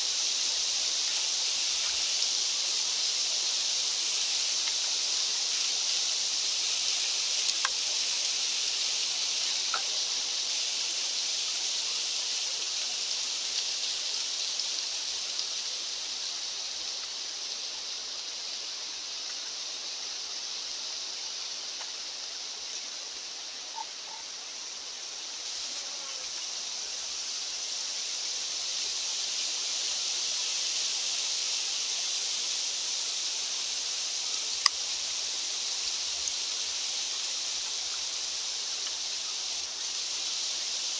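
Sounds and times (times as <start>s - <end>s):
faint ticks: 1.0s - 2.1s, 4.6s - 4.9s, 7.4s - 8.0s, 9.4s - 10.2s, 21.7s - 22.0s, 34.4s - 35.2s, 35.8s - 36.5s, 38.8s - 39.2s.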